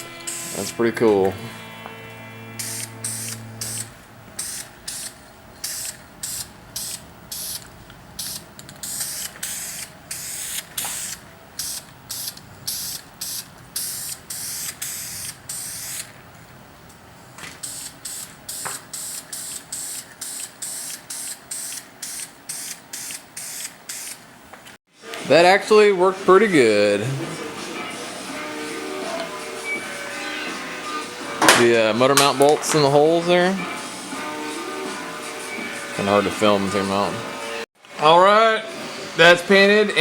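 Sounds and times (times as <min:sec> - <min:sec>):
aerosol can spraying hiss: 0:00.0 - 0:00.7, 0:02.6 - 0:07.6, 0:08.2 - 0:16.0, 0:17.6 - 0:24.2.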